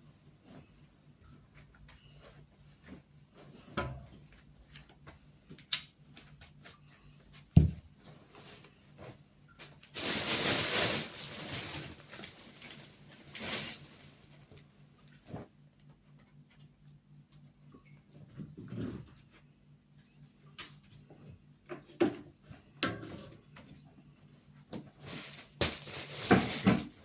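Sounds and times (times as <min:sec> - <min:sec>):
rustling or brushing: 0:08.0 - 0:14.4.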